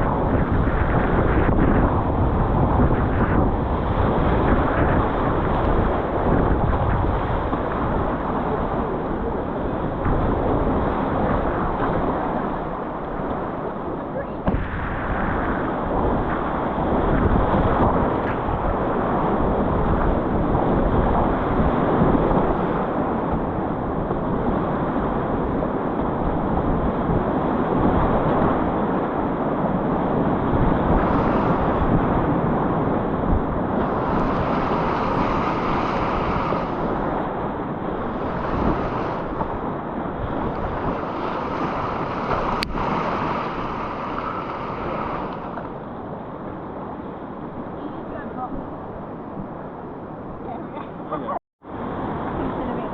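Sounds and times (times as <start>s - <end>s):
wind noise on microphone: 0.0s - 52.9s
whitewater rushing: 28.2s - 45.8s.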